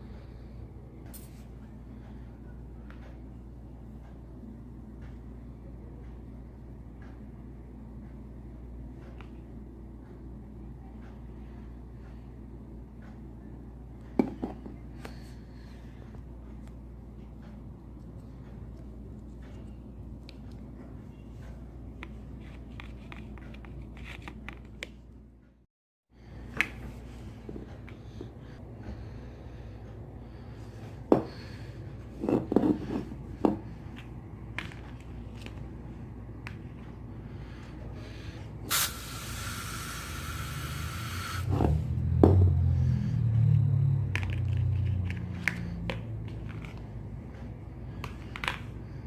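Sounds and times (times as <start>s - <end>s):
steady low hum: 0.0s - 49.0s
aerosol spray hissing: 38.7s - 41.5s
low rumbling handling noise: 41.4s - 47.5s.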